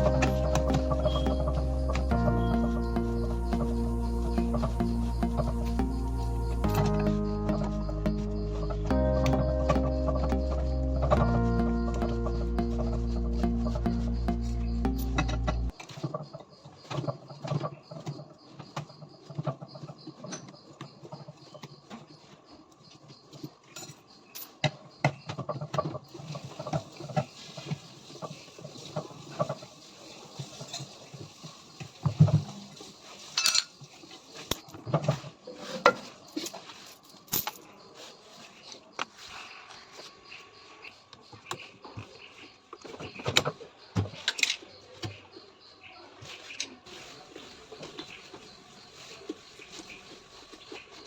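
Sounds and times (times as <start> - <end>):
hand tools and metal parts clinking: 23.3 - 24.7, 33.3 - 33.8, 34.4 - 37.8.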